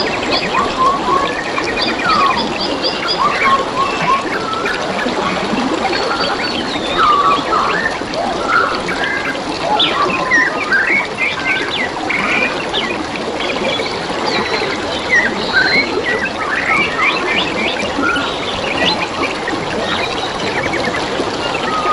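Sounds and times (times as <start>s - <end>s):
trickling running water: 0.0s - 21.9s
birds chirping and whistling: 0.1s - 5.1s, 5.9s - 12.9s, 19.9s - 21.9s.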